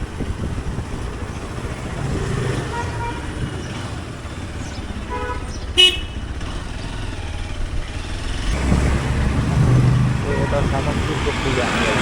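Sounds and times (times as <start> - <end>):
motorcycle engine running: 0.0 - 12.0
vehicle horn toot: 2.6 - 3.5, 5.0 - 6.3, 10.2 - 11.0.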